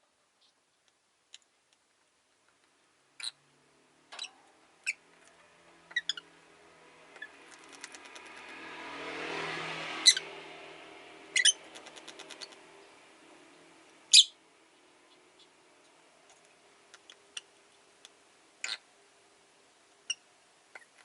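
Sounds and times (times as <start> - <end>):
bird chirping: 3.2 - 3.5, 4.1 - 6.5, 7.1 - 8.6, 10.0 - 10.4, 11.3 - 18.9, 20.0 - 21.0
car passing: 4.4 - 16.9.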